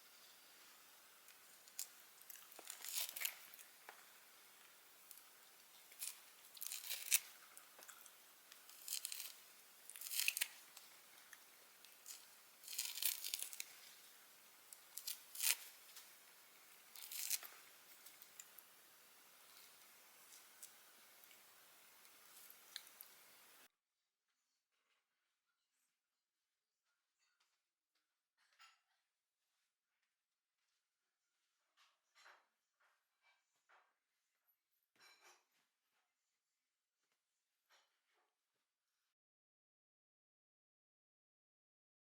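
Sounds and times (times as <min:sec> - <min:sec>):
crinkling and tearing: 0:01.2 - 0:23.7.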